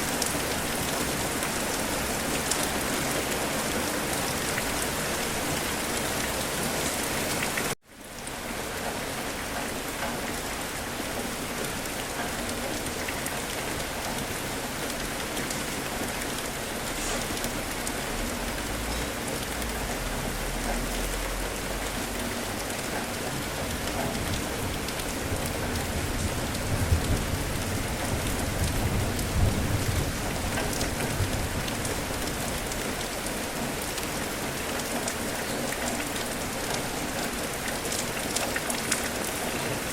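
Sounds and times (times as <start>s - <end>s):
rain falling: 0.0s - 39.9s
thunder rumbling: 23.7s - 32.8s.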